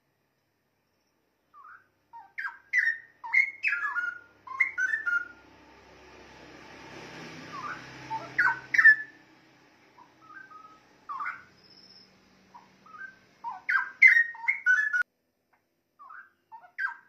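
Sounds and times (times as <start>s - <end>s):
bird singing whistled notes: 0.9s - 5.5s, 7.4s - 9.2s, 10.0s - 15.1s, 16.0s - 17.0s.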